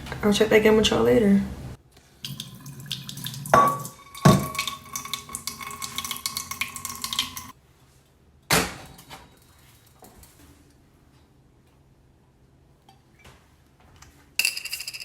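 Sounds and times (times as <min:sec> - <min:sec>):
metal cookware clanking: 0:03.4 - 0:07.5.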